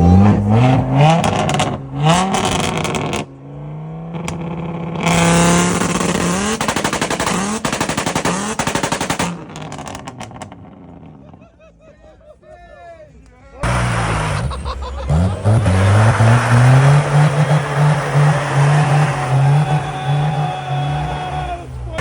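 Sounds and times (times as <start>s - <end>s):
car engine revving: 0.0s - 11.3s, 13.6s - 22.0s
exhaust pops and bangs: 1.1s - 3.3s, 4.2s - 11.1s.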